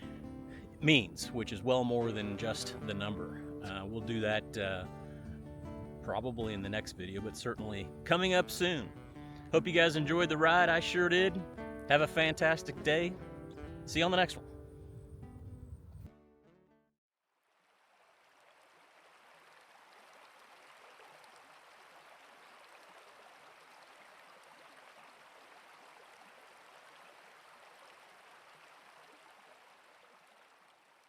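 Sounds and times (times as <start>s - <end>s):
stream rushing and trickling: 17.4s - 31.0s.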